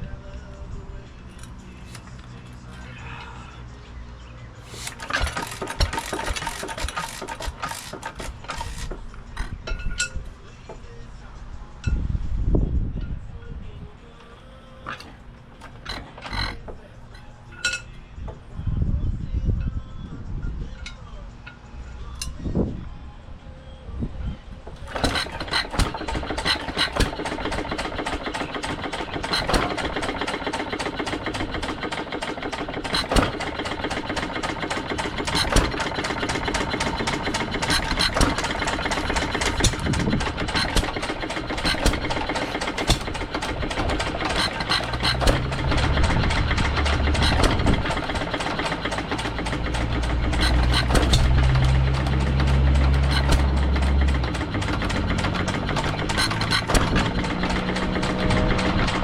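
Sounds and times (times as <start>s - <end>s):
mechanical clatter: 4.6s - 10.9s, 14.8s - 17.9s, 24.6s - 59.0s
engine firing pops: 4.7s - 9.8s, 24.7s - 59.0s
strong low hum: 8.3s - 15.9s, 16.5s - 24.9s, 34.8s - 48.4s.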